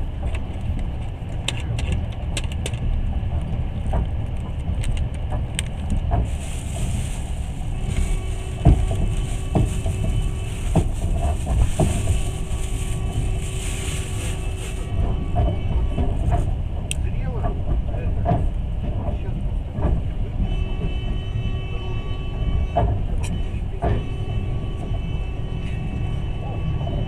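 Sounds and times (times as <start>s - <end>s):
train wheels rumbling on track: 0.0s - 27.0s
wheels knocking on rail joints: 0.1s - 13.4s.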